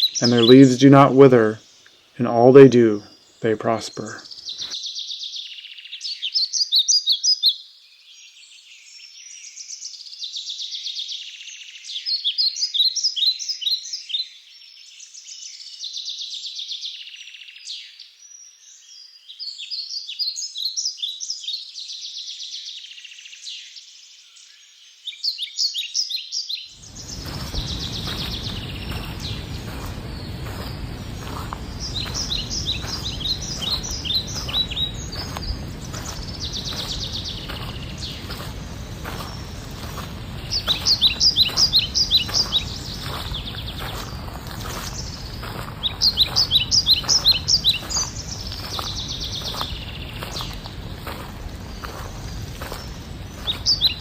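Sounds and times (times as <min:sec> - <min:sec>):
steady outdoor noise: 0:00.0 - 0:04.8, 0:26.8 - 0:54.0
songbird singing: 0:00.0 - 0:54.0.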